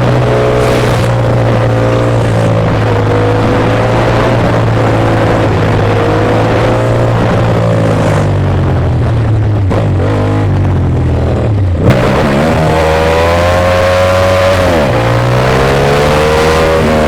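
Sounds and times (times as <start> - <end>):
motorcycle engine cruising: 0.0 - 17.0
wind noise: 0.0 - 17.0.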